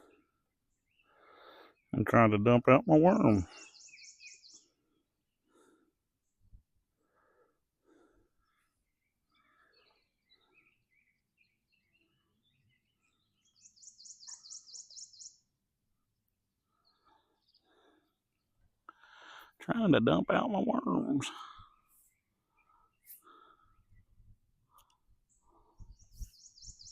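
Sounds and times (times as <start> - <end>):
songbird chirps: 0.0 - 26.9.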